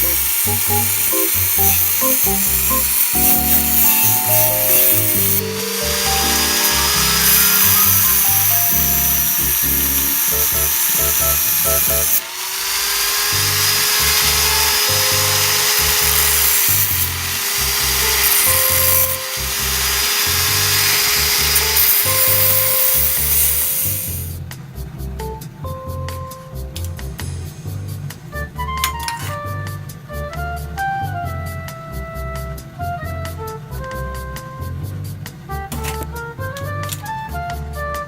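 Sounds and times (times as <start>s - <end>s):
background music: 0.0s - 12.2s
electric power tool running: 0.0s - 24.3s.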